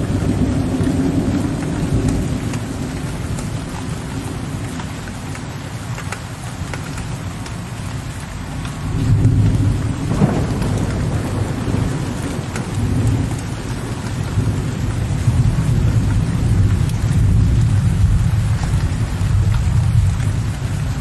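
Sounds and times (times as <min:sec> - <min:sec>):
rolling thunder: 0:00.0 - 0:04.8, 0:08.8 - 0:21.0
steady rain: 0:00.0 - 0:21.0
thunder crack: 0:09.0 - 0:20.8.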